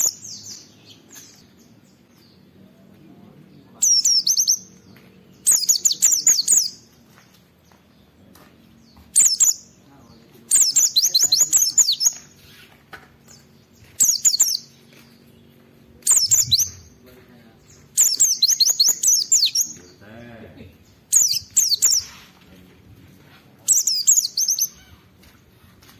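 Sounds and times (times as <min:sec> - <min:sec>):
bird singing high sliding chirps: 0:00.0 - 0:01.8, 0:03.7 - 0:06.9, 0:09.2 - 0:09.8, 0:10.5 - 0:15.0, 0:16.0 - 0:17.0, 0:17.6 - 0:20.0, 0:20.9 - 0:22.4, 0:23.6 - 0:25.1.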